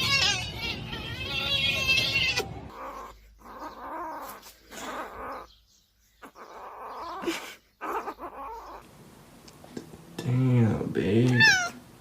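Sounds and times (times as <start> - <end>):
pet animal calling: 0.0 - 8.9, 11.3 - 11.8.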